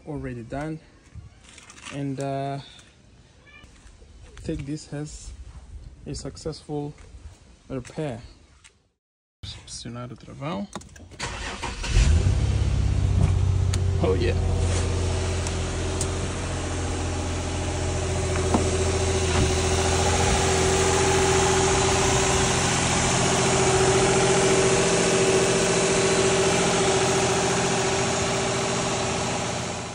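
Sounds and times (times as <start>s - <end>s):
car engine idling: 11.2s - 29.9s.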